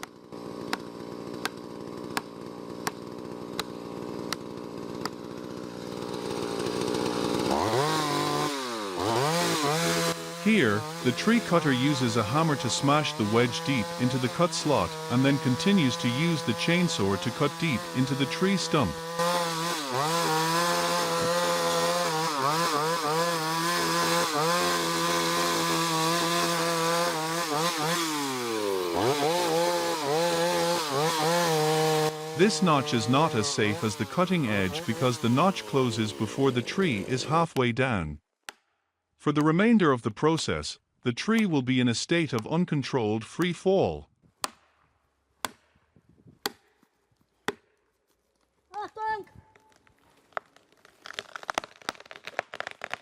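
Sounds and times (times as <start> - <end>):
chainsaw idling and revving: 0.0 - 37.4.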